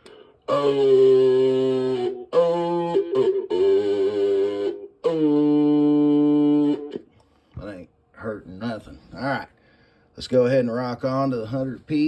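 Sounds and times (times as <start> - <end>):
man holding vowel tones: 0.0 - 7.2.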